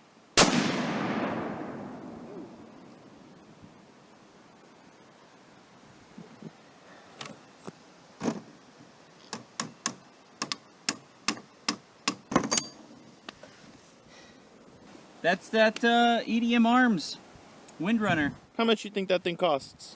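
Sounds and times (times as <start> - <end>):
sharp clicks and knocks: 9.2 - 13.4.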